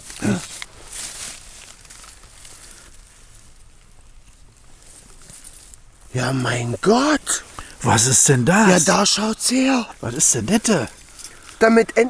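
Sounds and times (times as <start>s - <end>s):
rustling and handling noises: 0.0s - 5.8s.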